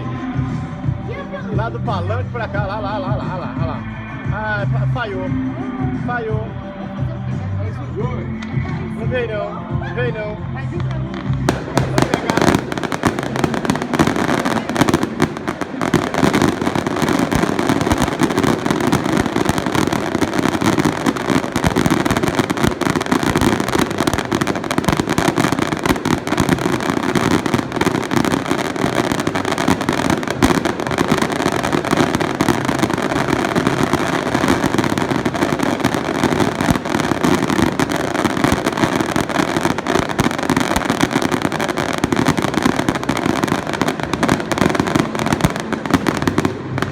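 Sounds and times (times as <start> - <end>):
fireworks crackling bangs: 10.6 - 46.9.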